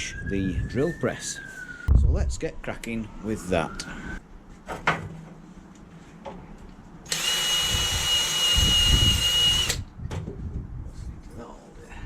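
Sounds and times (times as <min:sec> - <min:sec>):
power tool whining: 0:07.1 - 0:09.8.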